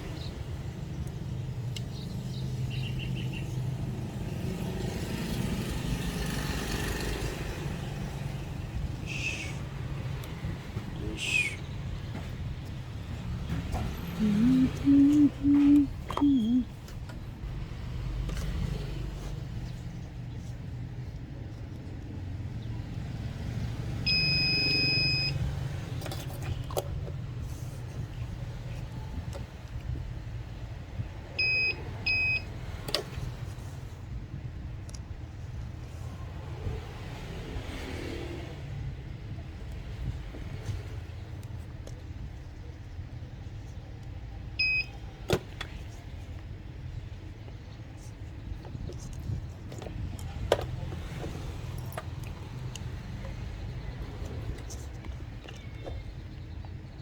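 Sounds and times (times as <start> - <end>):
constant low rumble: 38.9 - 57.0.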